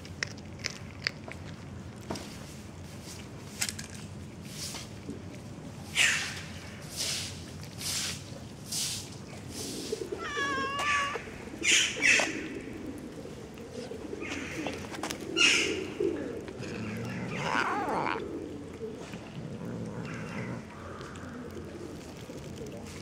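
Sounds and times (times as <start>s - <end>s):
cooing: 9.9s - 22.0s
birds calling: 10.0s - 13.0s, 13.8s - 19.1s.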